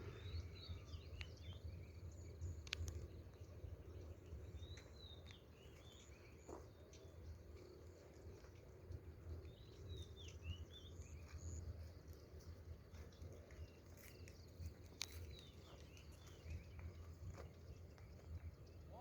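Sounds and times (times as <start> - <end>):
steady low rumble: 0.0 - 5.1
faint birds chirping: 0.0 - 19.0.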